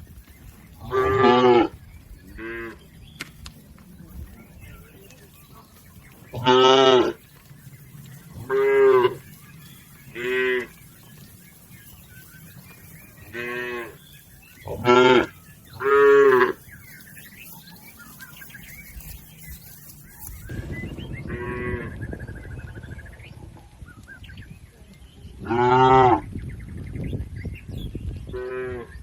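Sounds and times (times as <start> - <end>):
cattle mooing: 6.3 - 7.2, 13.2 - 14.0, 14.6 - 16.7.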